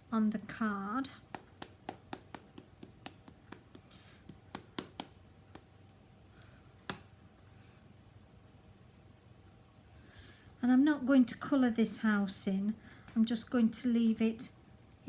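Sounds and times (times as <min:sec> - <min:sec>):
rubber stamp tapping: 0:01.3 - 0:05.7.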